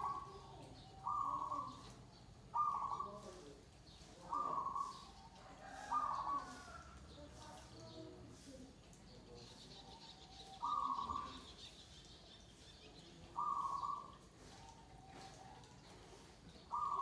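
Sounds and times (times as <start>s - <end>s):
dove cooing: 0.0s - 0.4s, 1.0s - 1.8s, 2.6s - 3.1s, 13.4s - 14.1s, 16.7s - 17.0s.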